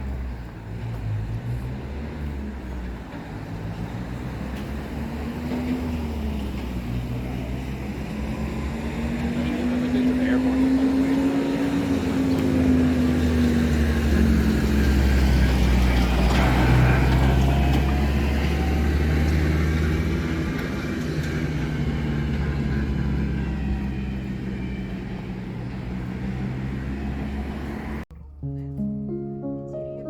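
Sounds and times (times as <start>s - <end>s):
vehicle engine passing: 0.0s - 28.1s.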